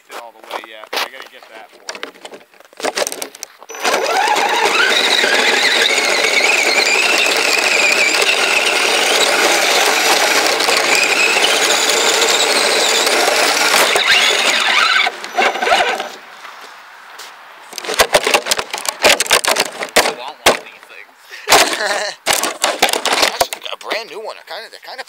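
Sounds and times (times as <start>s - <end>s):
toy vehicle drivetrain whining: 1.9s - 16.2s, 17.7s - 20.7s, 21.5s - 24.0s.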